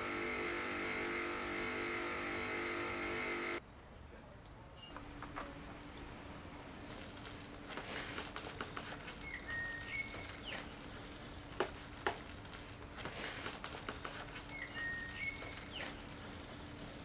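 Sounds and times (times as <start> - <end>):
bird chirping: 9.2 - 11.1, 14.4 - 17.0.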